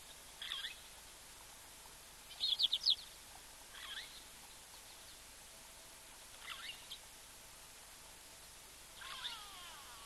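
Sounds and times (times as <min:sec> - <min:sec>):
background hiss: 0:00.0 - 0:10.0
bird calling: 0:09.0 - 0:10.0.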